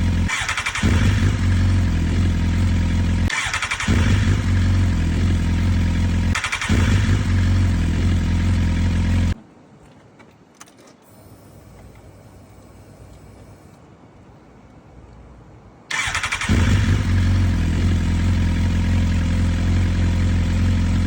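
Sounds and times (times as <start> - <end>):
motorcycle engine running: 0.0 - 9.4, 16.2 - 21.0
faint background noise: 6.3 - 17.2.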